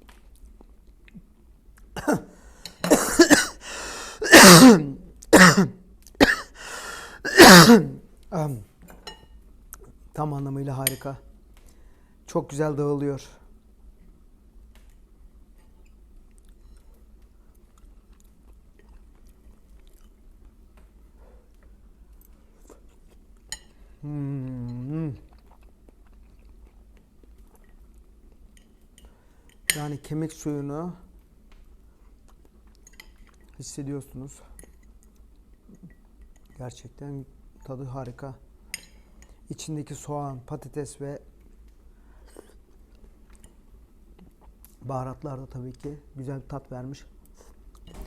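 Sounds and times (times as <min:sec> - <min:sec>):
man clearing his throat: 0:02.0 - 0:03.6, 0:04.2 - 0:06.6, 0:07.2 - 0:08.0
man coughing: 0:02.0 - 0:08.0
person chewing: 0:17.6 - 0:20.6, 0:24.1 - 0:28.2.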